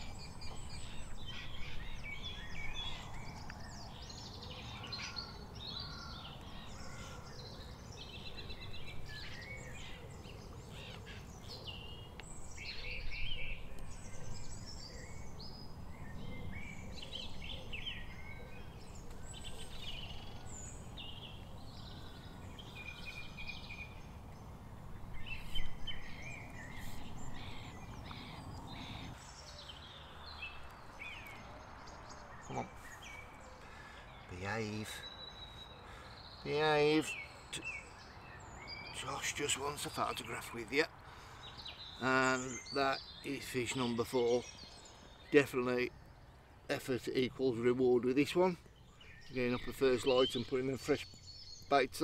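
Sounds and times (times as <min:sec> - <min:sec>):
small birds singing and chirping: 0:00.0 - 0:52.0.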